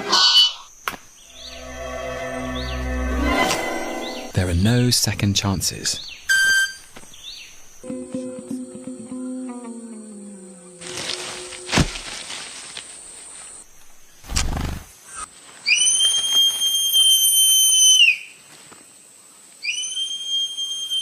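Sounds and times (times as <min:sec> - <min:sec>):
whistle-like wing tones: 0:01.3 - 0:04.4, 0:06.3 - 0:06.9, 0:15.7 - 0:18.2, 0:19.7 - 0:21.0
wing feathers snapping: 0:14.2 - 0:14.9.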